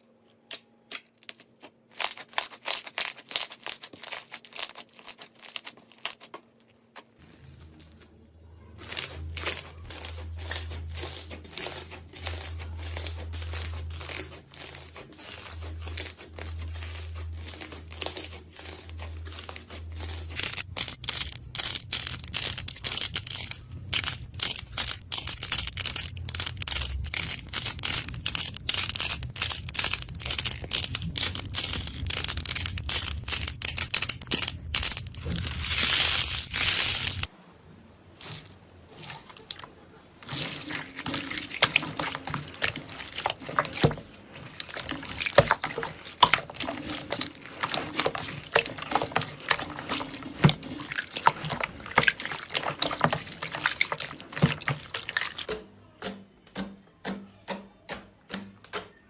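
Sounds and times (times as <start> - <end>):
slime crackling and popping: 0.4 - 7.1, 8.8 - 37.3, 40.2 - 55.5
low hum: 7.4 - 38.9.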